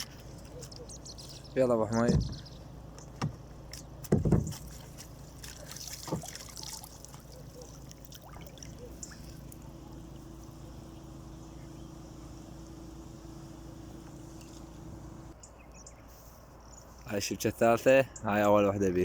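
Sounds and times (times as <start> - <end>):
water dripping off fishing net: 4.6 - 9.7.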